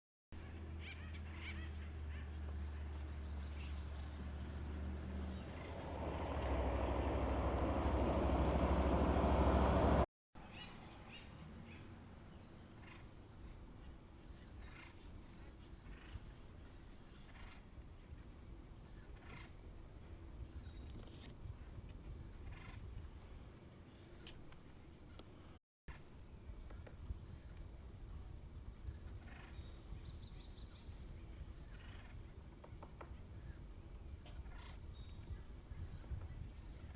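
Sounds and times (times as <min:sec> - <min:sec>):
birds calling: 0:00.4 - 0:21.5, 0:28.8 - 0:36.9.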